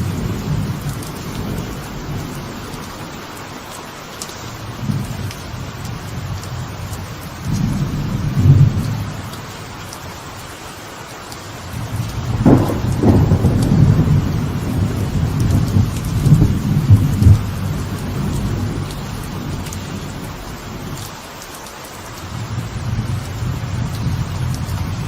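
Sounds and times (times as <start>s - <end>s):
thunder rumbling: 0.0s - 3.7s, 4.5s - 9.6s, 11.7s - 21.1s, 22.2s - 25.0s
light rain: 0.0s - 25.0s
thunder cracks: 11.8s - 21.0s.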